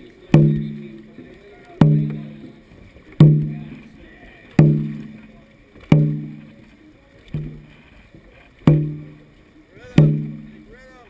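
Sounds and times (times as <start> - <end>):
deep drum strokes: 0.0 - 10.9.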